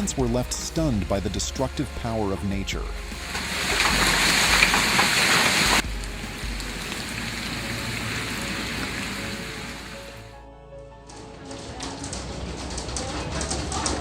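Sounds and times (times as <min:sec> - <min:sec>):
hail and rain pelting down: 0:02.8 - 0:10.4, 0:11.3 - 0:14.0.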